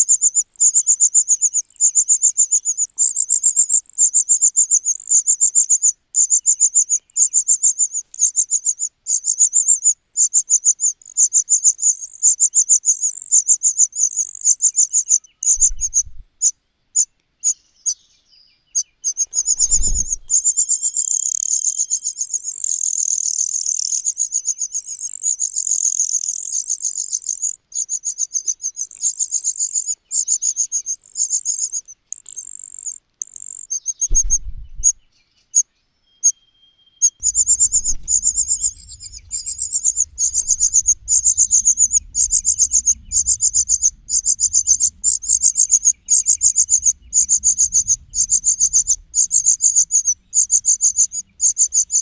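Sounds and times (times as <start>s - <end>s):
nestlings chirping begging calls: 0.0s - 18.0s, 18.8s - 35.6s, 37.0s - 52.0s
faint low rumble: 15.4s - 16.4s, 19.4s - 20.5s, 34.1s - 35.1s, 37.2s - 52.0s.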